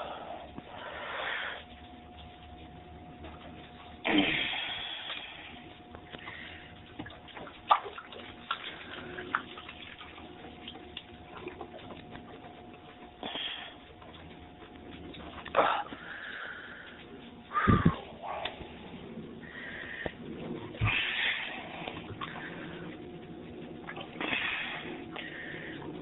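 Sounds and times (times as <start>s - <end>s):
water sloshing: 3.1s - 13.4s, 19.4s - 25.4s.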